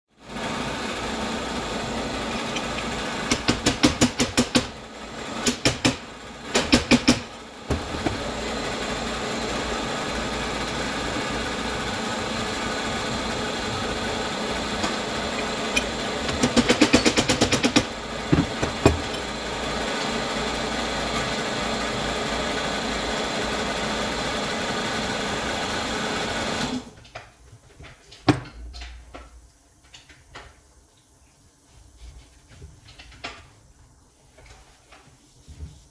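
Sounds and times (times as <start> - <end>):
machine motor running: 6.4 - 21.0.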